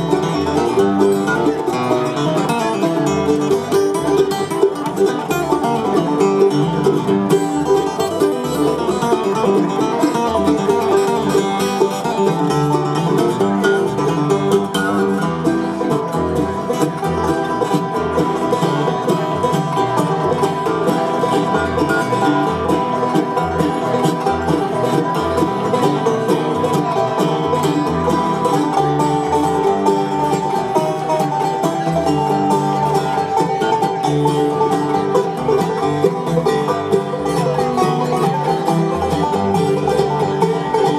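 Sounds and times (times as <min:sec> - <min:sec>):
picked banjo: 0:00.0 - 0:40.9
strummed guitar: 0:00.0 - 0:40.9.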